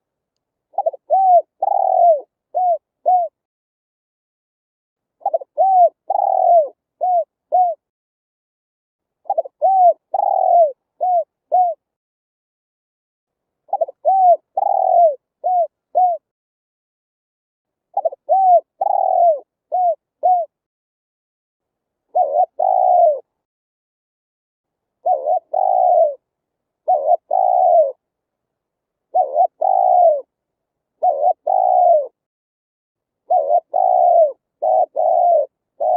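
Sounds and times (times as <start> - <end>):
dove cooing: 0.7 - 3.4, 5.2 - 7.8, 9.2 - 11.8, 13.7 - 16.3, 18.0 - 20.6, 22.1 - 23.3, 25.0 - 26.2, 26.8 - 28.0, 29.1 - 30.3, 31.0 - 32.2, 33.3 - 35.9.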